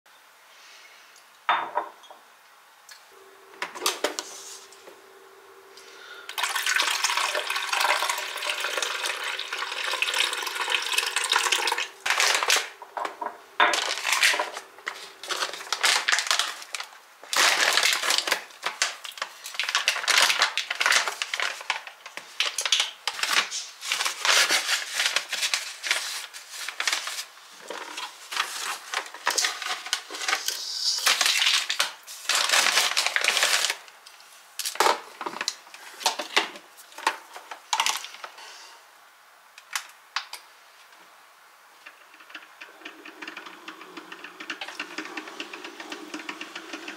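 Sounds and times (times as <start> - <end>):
running water: 6.4 - 12.8.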